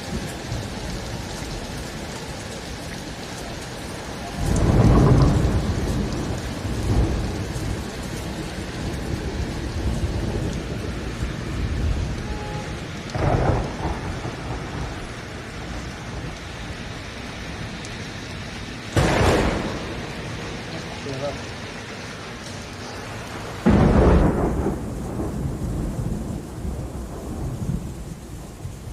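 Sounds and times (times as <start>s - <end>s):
steady rain falling: 0.0s - 28.9s
thunder rumbling: 0.0s - 28.9s.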